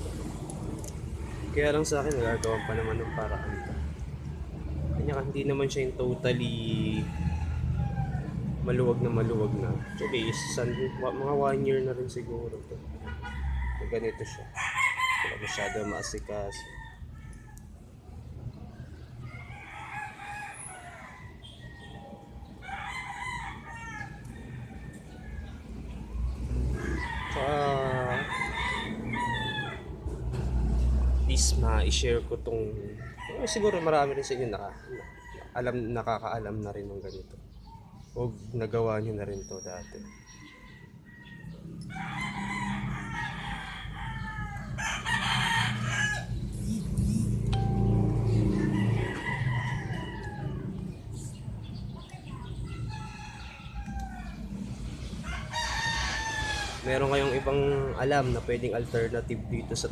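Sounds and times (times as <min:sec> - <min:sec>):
rooster crowing: 0:02.1 - 0:04.1, 0:06.8 - 0:08.4, 0:09.7 - 0:11.6, 0:13.1 - 0:17.8, 0:19.2 - 0:25.8, 0:26.7 - 0:29.9, 0:32.9 - 0:35.7, 0:40.0 - 0:46.4, 0:47.6 - 0:51.0, 0:52.6 - 0:54.6, 0:55.2 - 0:57.6
low steady hum: 0:46.5 - 0:49.2.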